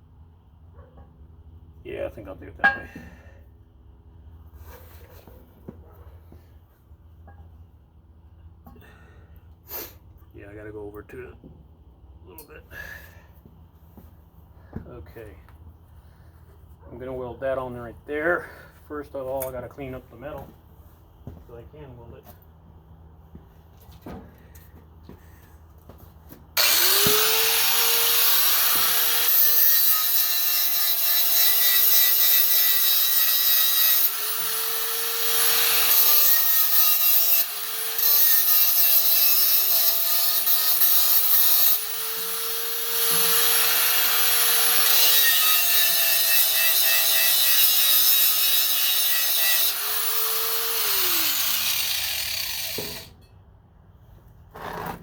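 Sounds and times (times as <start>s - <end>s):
angle grinder grinding steel: 26.6s - 53.1s.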